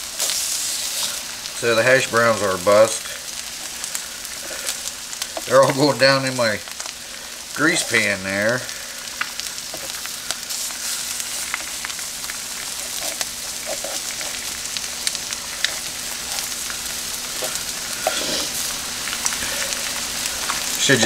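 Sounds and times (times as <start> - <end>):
food sizzling on a griddle: 0.0 - 21.0
plastic spatula scraping griddle: 12.9 - 14.4, 17.5 - 18.6.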